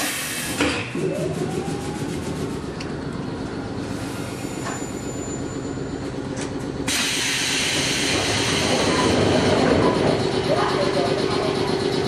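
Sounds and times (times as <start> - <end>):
loud air hiss: 6.9 - 8.8.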